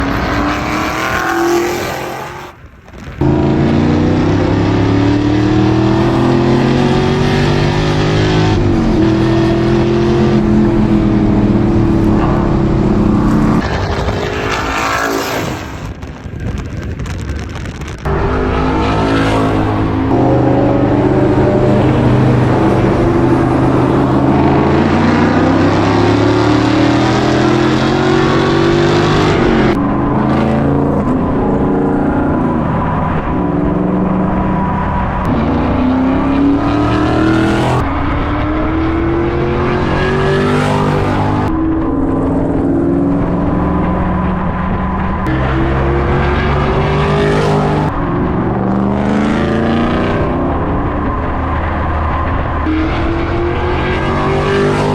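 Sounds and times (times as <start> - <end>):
car engine revving under load: 0.0 - 2.6, 3.2 - 15.9, 18.0 - 54.9.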